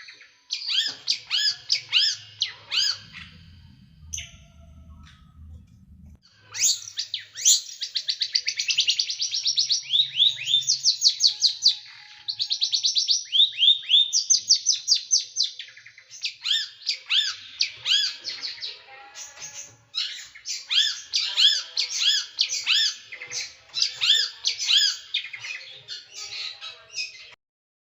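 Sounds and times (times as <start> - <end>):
songbird trilling: 0.6 - 5.1.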